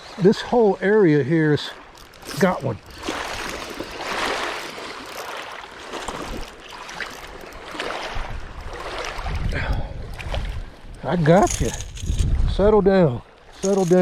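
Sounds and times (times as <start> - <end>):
water lapping: 0.0 - 12.4, 13.0 - 14.0
wind buffeting microphone: 8.0 - 13.0.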